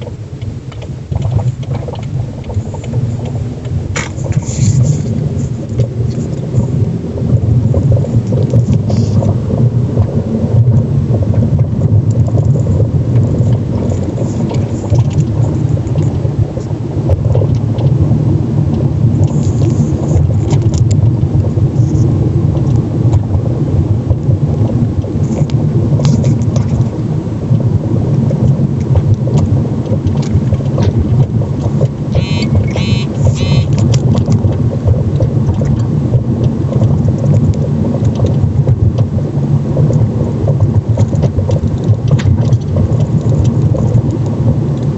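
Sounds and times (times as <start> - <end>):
car road rumble: 0.0 - 44.9
high metallic ticking: 32.1 - 33.9.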